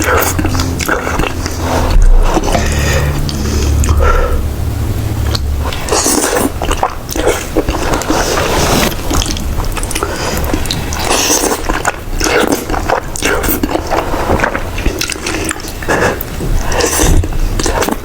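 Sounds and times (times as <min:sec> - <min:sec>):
chewing food with crunches: 0:00.0 - 0:04.2, 0:05.0 - 0:18.0.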